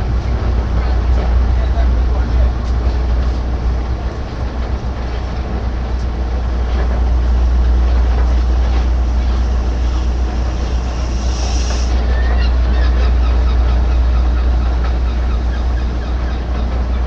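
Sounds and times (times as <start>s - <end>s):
heavy machinery rumbling: 0.0s - 17.0s
brief hiss: 11.1s - 12.0s.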